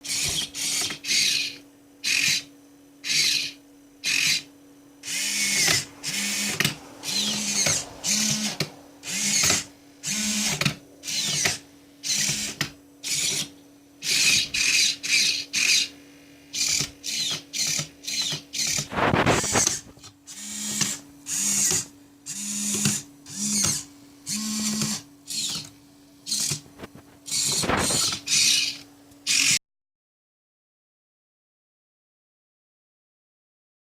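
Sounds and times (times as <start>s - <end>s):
servo motors whining: 0.0s - 29.6s
low hum: 3.6s - 14.7s.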